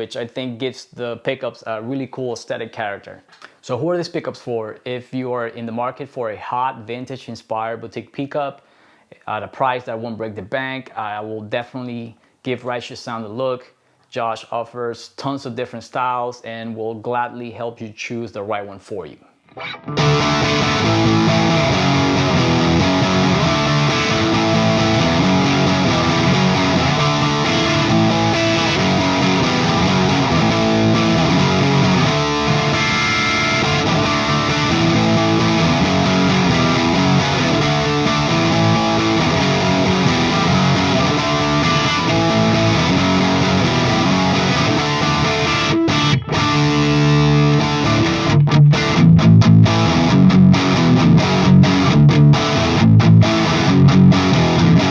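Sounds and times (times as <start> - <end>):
distorted electric guitar riffing: 19.5 - 54.9.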